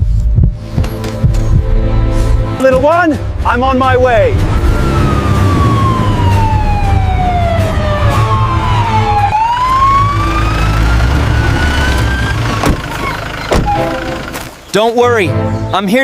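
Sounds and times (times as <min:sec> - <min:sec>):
emergency siren wailing: 0:04.3 - 0:14.4.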